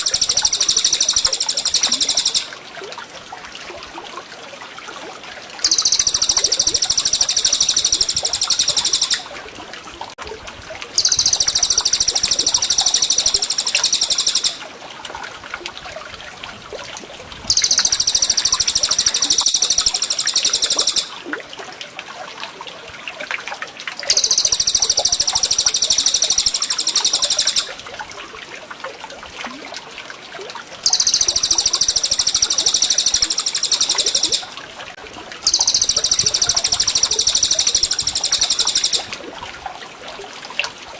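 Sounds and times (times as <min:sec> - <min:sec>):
songbird trilling: 0:00.0 - 0:02.5, 0:05.6 - 0:09.3, 0:11.0 - 0:14.6, 0:17.5 - 0:21.2, 0:24.1 - 0:27.8, 0:30.8 - 0:34.5, 0:35.4 - 0:39.1
running water trickling: 0:00.0 - 0:22.0, 0:23.8 - 0:40.9.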